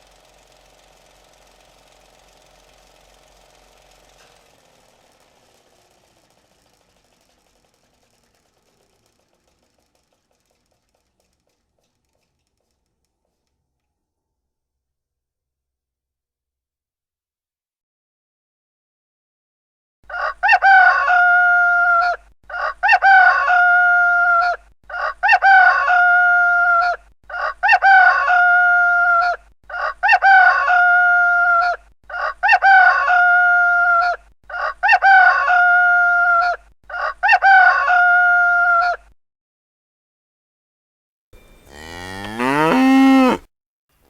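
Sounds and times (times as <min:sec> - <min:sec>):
rooster crowing: 0:20.1 - 0:21.8, 0:41.7 - 0:43.4.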